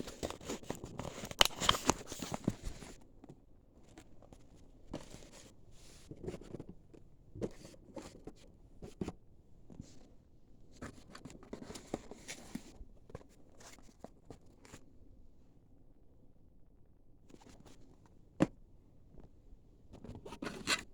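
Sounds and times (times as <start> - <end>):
packaging rustling and scraping: 0.0 - 3.0.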